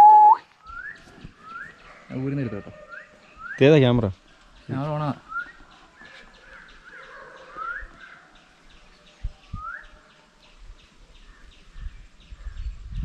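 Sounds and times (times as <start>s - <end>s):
bird whistling call: 0.0s - 1.8s.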